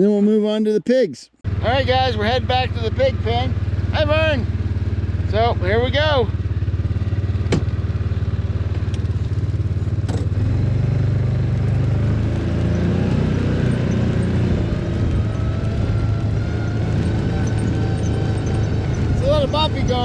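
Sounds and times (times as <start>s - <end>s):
farm vehicle engine running: 1.5s - 20.0s
sharp knocks: 7.5s - 7.8s.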